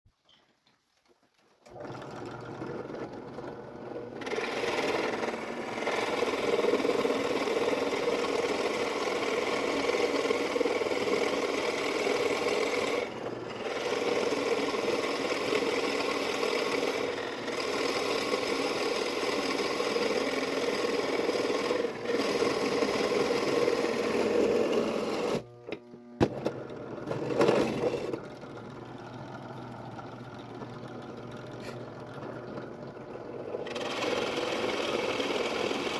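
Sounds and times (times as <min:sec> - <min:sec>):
woodworking machine running: 0:01.7 - 0:35.9.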